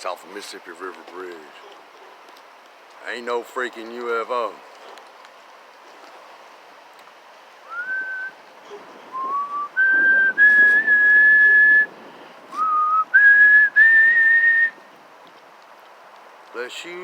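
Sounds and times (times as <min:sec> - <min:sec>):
person whistling a slow tune: 0:07.7 - 0:08.3, 0:09.1 - 0:11.9, 0:12.6 - 0:14.8.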